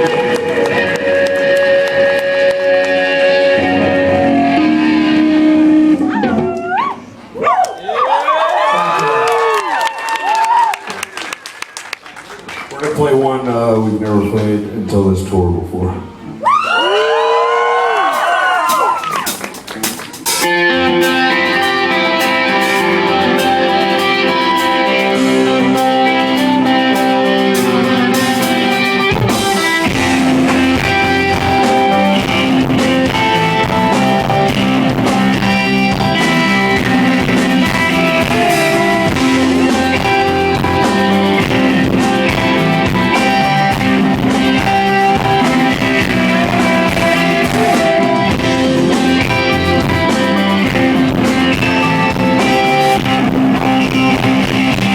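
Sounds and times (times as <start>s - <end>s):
picked guitar notes: 0.0s - 7.3s, 18.7s - 54.9s
rock band playing: 0.0s - 7.4s, 17.6s - 54.9s.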